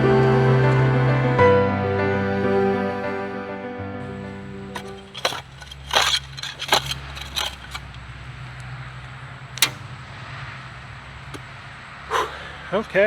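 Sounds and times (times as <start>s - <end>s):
background music: 0.0s - 5.0s
shovel scraping into soil: 4.0s - 8.5s
truck traffic hum: 4.0s - 13.0s.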